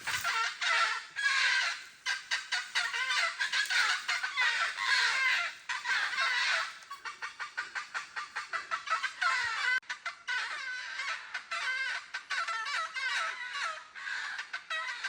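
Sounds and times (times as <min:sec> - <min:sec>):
falcon cackling calls: 0:00.0 - 0:09.8.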